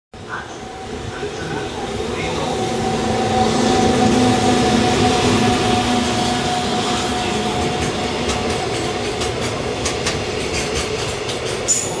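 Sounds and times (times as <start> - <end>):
wheels rumbling on rail: 0.2 - 12.0
wheels clicking over rail joints: 7.6 - 12.0.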